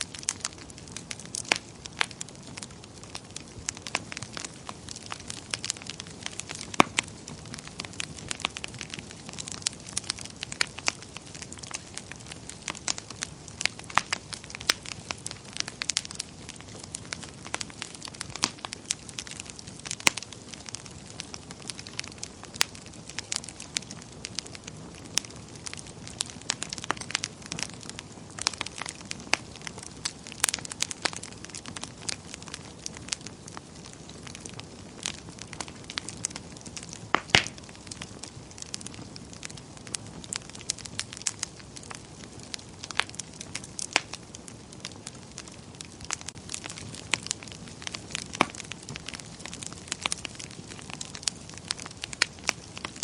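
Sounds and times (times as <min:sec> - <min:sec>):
wood fire crackling and popping: 0:00.0 - 0:53.0.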